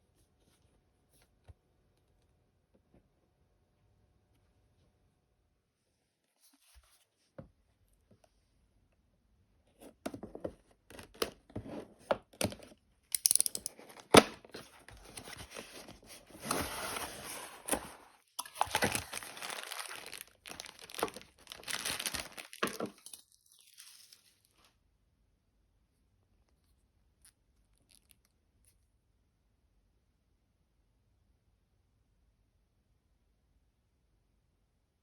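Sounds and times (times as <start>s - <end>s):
sharp snaps and handling clicks: 13.1s - 13.8s
packaging tearing and crinkling: 15.0s - 24.3s.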